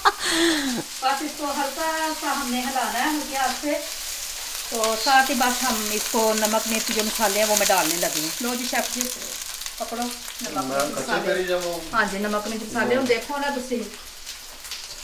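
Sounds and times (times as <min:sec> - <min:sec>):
cauliflower deep-frying: 0:00.0 - 0:15.0
onion sizzling in hot oil: 0:00.0 - 0:15.0
spatula stirring in wok: 0:00.8 - 0:08.0
person talking: 0:09.8 - 0:13.9.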